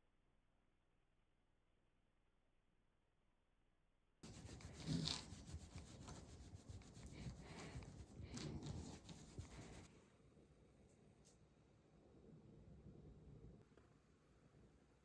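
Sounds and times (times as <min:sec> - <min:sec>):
rubbing and rustling: 0:04.2 - 0:09.9
scraping: 0:04.2 - 0:09.9.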